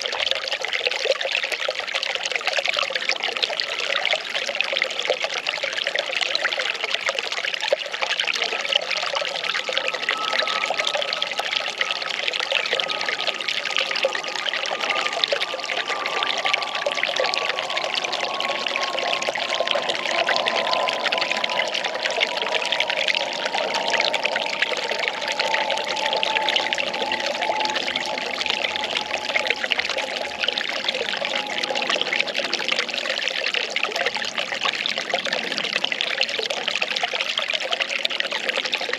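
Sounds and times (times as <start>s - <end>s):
water pouring and trickling: 0.0s - 38.9s
faint tone falling in pitch: 6.2s - 35.4s.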